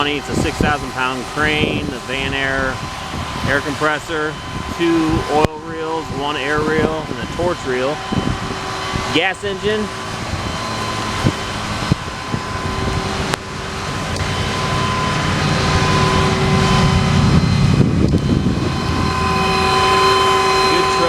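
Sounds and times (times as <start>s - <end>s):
engine running with whine: 0.0s - 21.0s.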